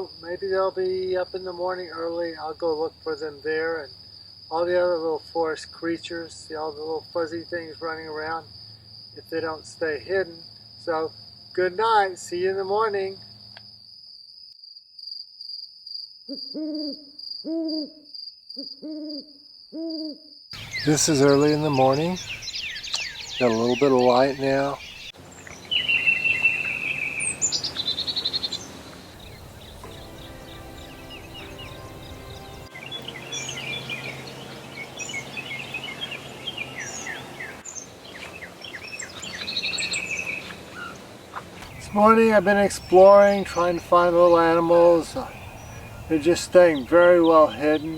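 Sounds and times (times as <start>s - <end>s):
high-pitched insect trill: 0.0s - 47.9s
bird hooting calls: 16.3s - 47.9s.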